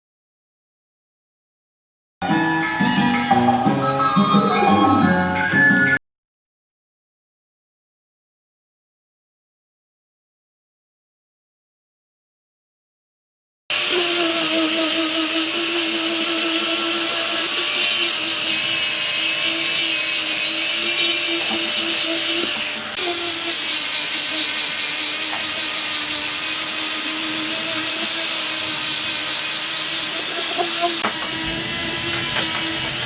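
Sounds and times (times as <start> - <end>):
power tool cutting wood: 13.7 - 33.0.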